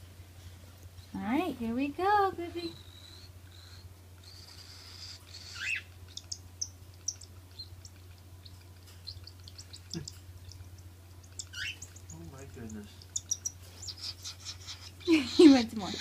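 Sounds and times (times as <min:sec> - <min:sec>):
baby cockatiel begging calls: 0:02.8 - 0:05.9.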